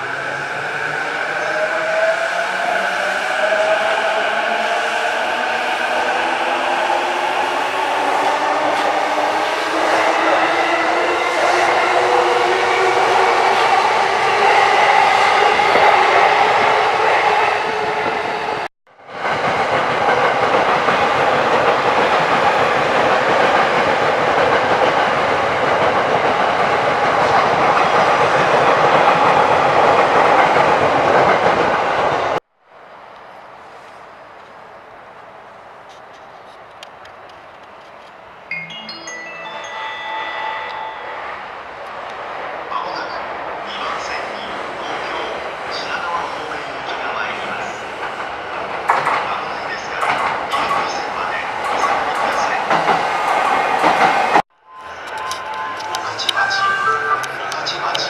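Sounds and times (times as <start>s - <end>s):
train running noise: 40.0s - 58.0s.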